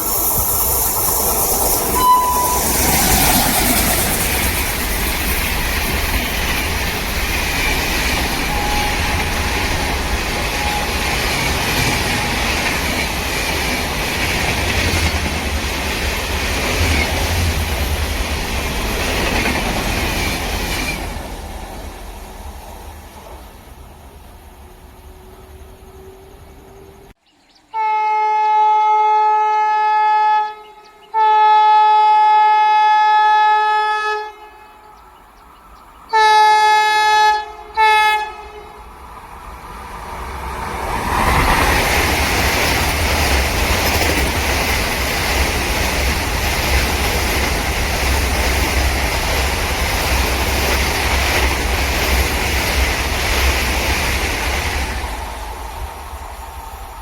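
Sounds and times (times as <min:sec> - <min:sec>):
wheels clattering on rails: 0:00.0 - 0:22.1, 0:40.2 - 0:57.0
train rumbling past: 0:00.0 - 0:27.9, 0:32.2 - 0:57.0
locomotive horn blasts: 0:02.0 - 0:03.2, 0:08.3 - 0:12.7, 0:27.7 - 0:34.8, 0:36.1 - 0:38.9.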